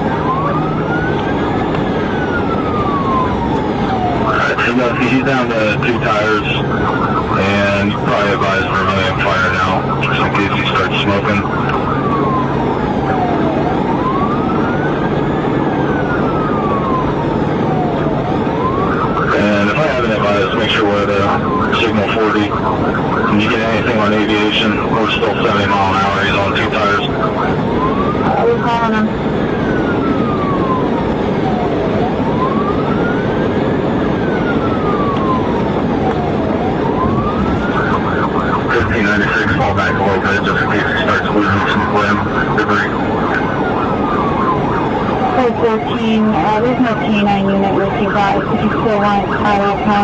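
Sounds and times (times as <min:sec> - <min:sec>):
engine and road noise: 0:00.0 - 0:50.0
police siren wailing: 0:00.0 - 0:50.0.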